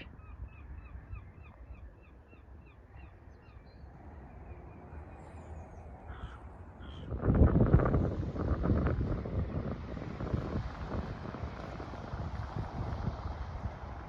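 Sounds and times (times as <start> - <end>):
wind buffeting microphone: 6.8 - 14.0.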